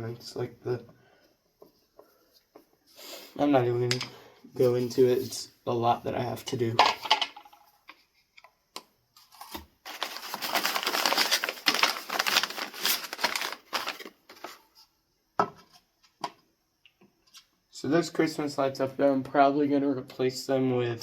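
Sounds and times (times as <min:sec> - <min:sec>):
objects rattling and crinkling: 0:06.8 - 0:07.7, 0:09.3 - 0:14.6.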